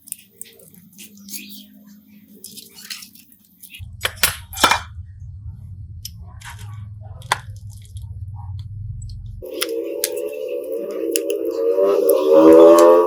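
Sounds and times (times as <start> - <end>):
low steady hum: 3.7 - 13.0.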